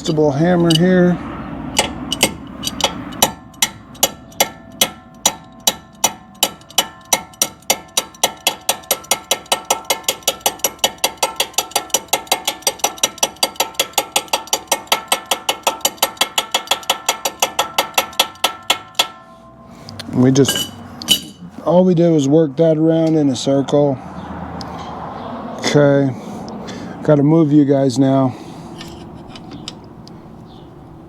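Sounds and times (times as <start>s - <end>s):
steel ringing: 0.0s - 23.9s
hammer taps on steel: 1.8s - 19.2s.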